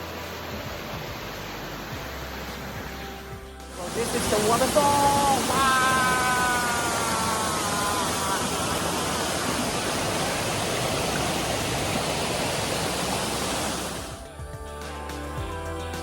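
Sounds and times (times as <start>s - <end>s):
music: 0.0s - 6.7s, 14.1s - 16.0s
waterfall rushing: 0.0s - 14.3s.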